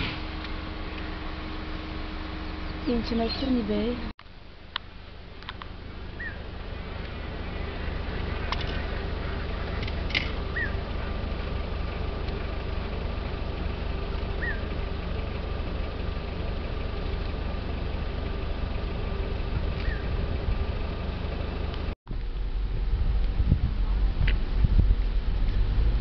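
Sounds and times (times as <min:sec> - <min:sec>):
vehicle engine idling: 0:00.0 - 0:26.0
bird chirp: 0:02.4 - 0:04.0, 0:06.1 - 0:10.9, 0:14.3 - 0:14.7, 0:19.7 - 0:20.2.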